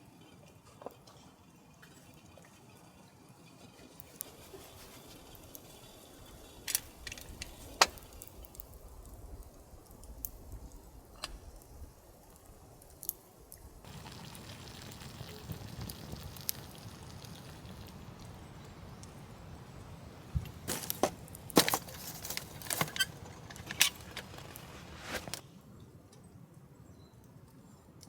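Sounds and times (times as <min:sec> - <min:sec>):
campfire crackling: 0:03.9 - 0:25.4.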